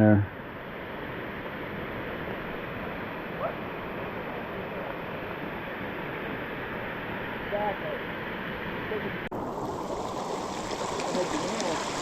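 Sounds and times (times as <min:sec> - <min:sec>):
waterfall rushing: 0:09.4 - 0:12.0.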